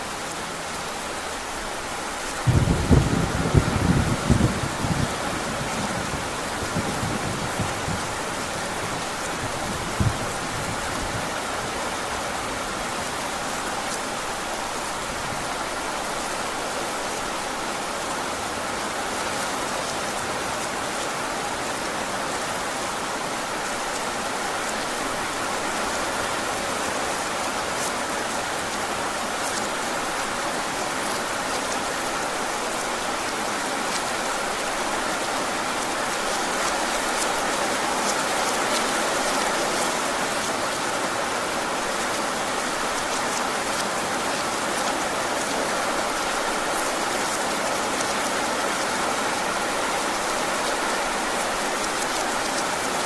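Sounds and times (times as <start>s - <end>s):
heavy rain: 0.0s - 53.0s
low thunder rumble: 2.4s - 11.3s.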